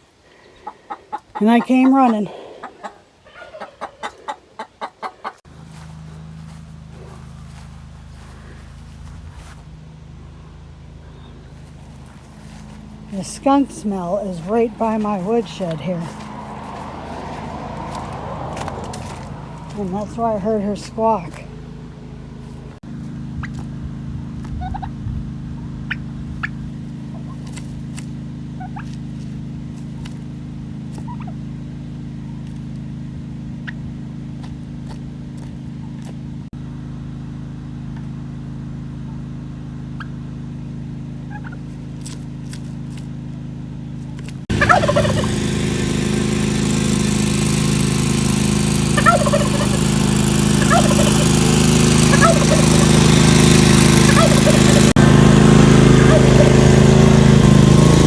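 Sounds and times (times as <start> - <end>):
chickens clucking: 0.3 - 5.9, 44.5 - 47.4, 48.2 - 55.0, 55.9 - 56.9
steady low hum: 5.5 - 45.6.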